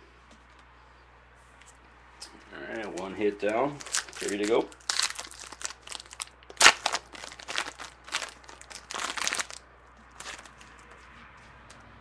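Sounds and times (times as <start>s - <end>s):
foil wrapper tearing and crinkling: 3.7s - 10.7s.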